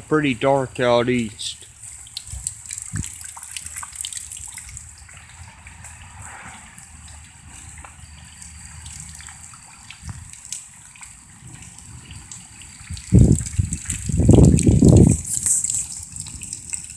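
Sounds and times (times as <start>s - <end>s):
light rain hiss: 0.0s - 16.9s
water drips: 0.0s - 16.9s.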